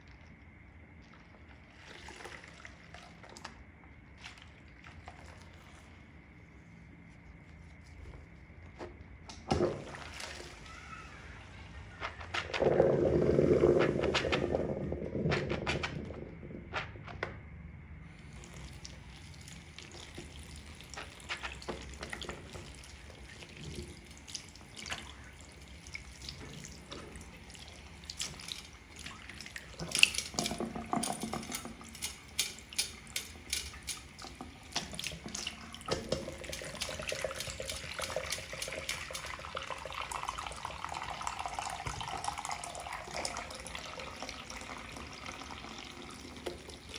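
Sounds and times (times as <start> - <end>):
water splashing and running: 9.5 - 16.8, 18.2 - 46.9
sponges squelching: 9.6 - 16.9, 18.2 - 39.3.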